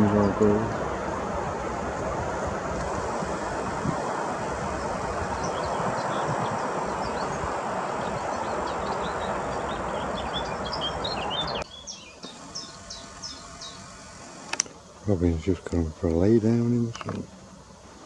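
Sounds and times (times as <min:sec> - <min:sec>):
steady rushing noise: 0:00.0 - 0:11.6
small birds chirping: 0:00.0 - 0:18.0.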